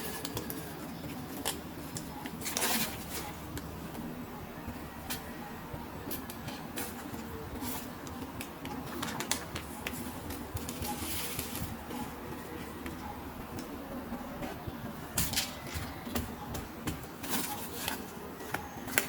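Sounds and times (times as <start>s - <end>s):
plastic toys clicking and rustling: 0.0s - 3.7s, 6.0s - 13.7s, 15.1s - 19.0s.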